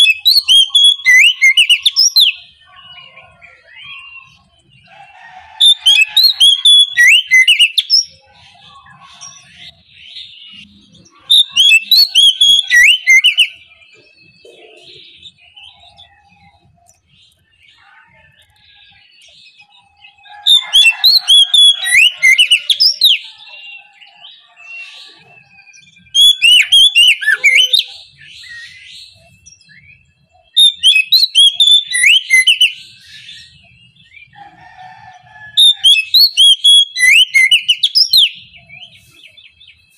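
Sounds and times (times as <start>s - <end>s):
bird singing whistles: 0.0s - 2.4s, 5.6s - 8.2s, 10.5s - 13.6s, 24.5s - 33.6s, 35.6s - 39.0s.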